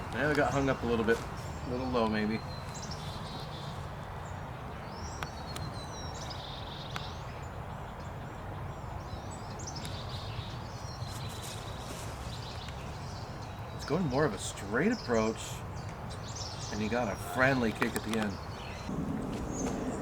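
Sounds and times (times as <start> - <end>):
birds chirping: 0.0 - 20.0
low outdoor rumble: 16.8 - 20.0
faint sharp clicks: 17.8 - 18.5.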